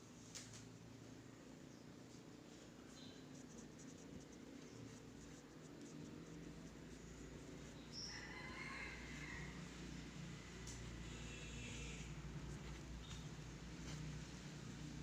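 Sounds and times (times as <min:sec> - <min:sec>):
marker drawing on paper: 0:02.7 - 0:08.2.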